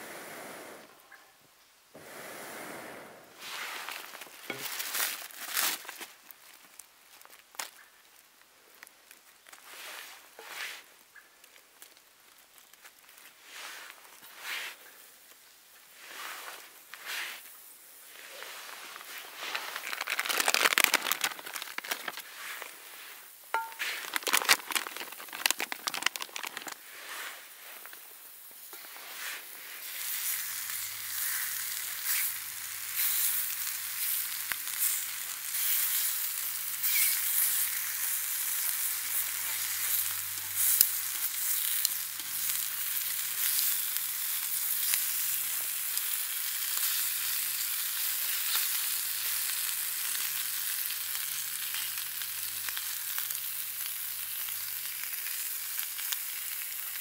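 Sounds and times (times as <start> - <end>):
crackles and clicks: 3.7 - 14.4, 16.5 - 47.6
food frying in a pan: 4.4 - 5.5, 15.4 - 57.0.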